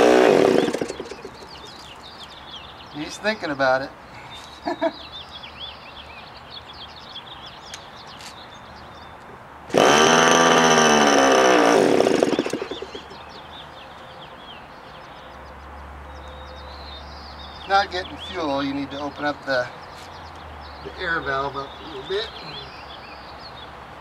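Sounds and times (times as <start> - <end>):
model engine buzzing and sputtering: 0.0 - 1.7, 9.7 - 13.2
birds chirping faintly: 0.3 - 9.5, 12.0 - 24.0.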